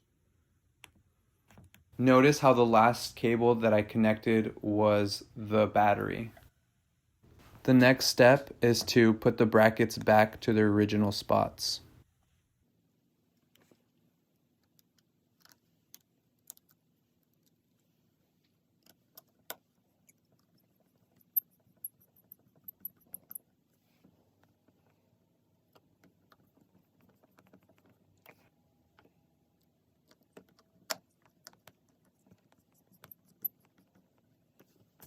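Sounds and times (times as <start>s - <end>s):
small metal tools clicking and tapping: 18.8s - 23.5s.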